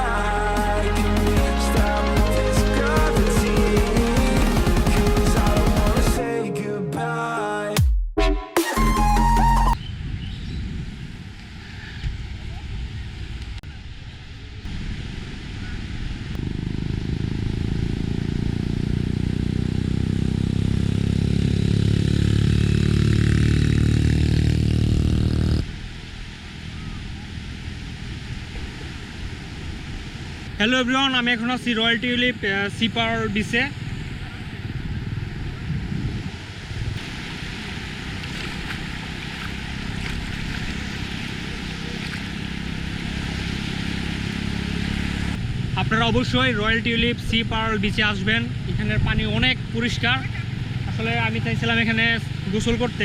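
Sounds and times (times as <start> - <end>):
wind rumbling on microphone: 9.8 - 30.6, 31.2 - 53.0
vehicle engine running: 14.7 - 29.5, 36.6 - 53.0
sea surf washing onto beach: 25.6 - 34.6, 36.2 - 45.4.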